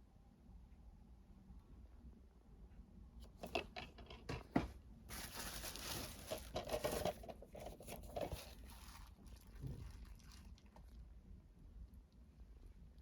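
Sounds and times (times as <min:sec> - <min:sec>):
packaging clicks and knocks: 0:03.4 - 0:08.6
packaging rustling and crinkling: 0:04.4 - 0:11.0.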